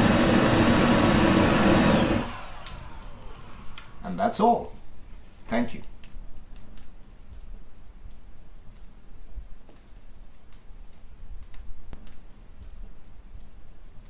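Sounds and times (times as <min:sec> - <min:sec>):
fire crackling and popping: 0:00.0 - 0:14.0
low steady fire rumble: 0:00.0 - 0:14.0.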